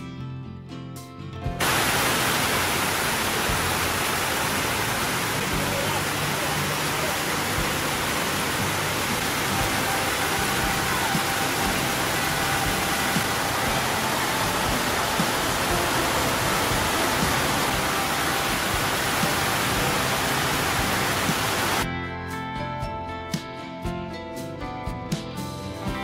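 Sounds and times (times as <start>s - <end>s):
acoustic guitar music: 0.0s - 26.0s
heavy rain pouring: 1.6s - 21.8s.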